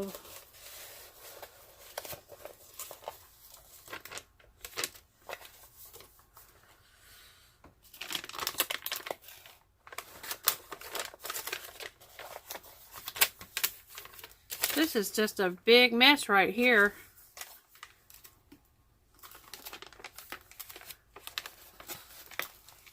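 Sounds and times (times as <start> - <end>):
canvas crinkling and rustling: 19.2 - 22.9.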